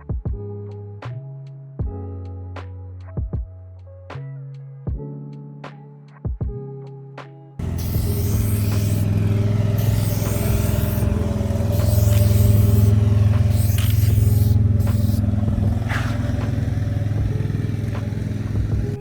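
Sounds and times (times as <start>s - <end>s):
car engine running: 7.6s - 19.0s.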